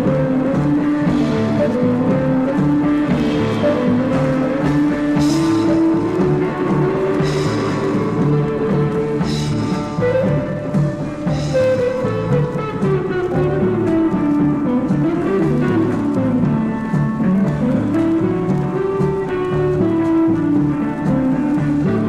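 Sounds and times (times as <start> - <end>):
cymbal strokes: 0.0 - 12.3
rock band playing from vinyl: 0.0 - 22.0.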